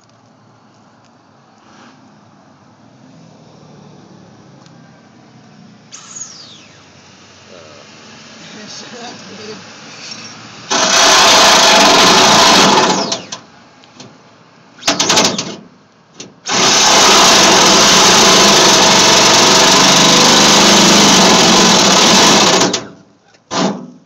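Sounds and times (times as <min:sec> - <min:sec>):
power drill boring through metal: 0:05.9 - 0:07.0, 0:09.9 - 0:13.4, 0:16.5 - 0:23.0.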